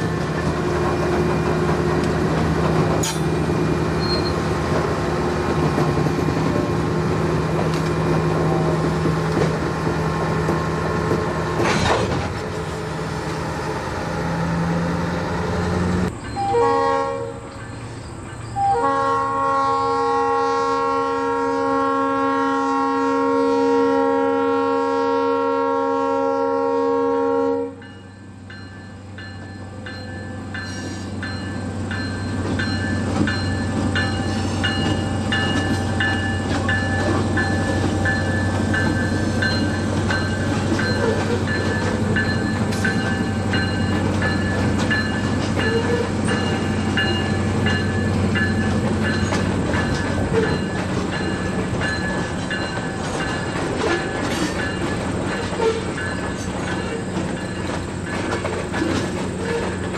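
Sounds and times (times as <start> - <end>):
low train drone: 0.0 - 59.9
train wheels clicking over rail: 0.2 - 6.8, 7.4 - 12.7, 32.5 - 59.9
high wheel squeals: 3.9 - 4.6, 30.6 - 52.8, 53.8 - 57.6.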